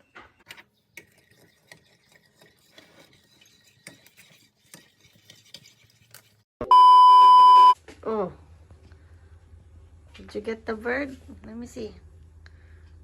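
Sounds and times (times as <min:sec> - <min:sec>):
spoon stirring and clinking in cup: 0:00.5 - 0:06.4.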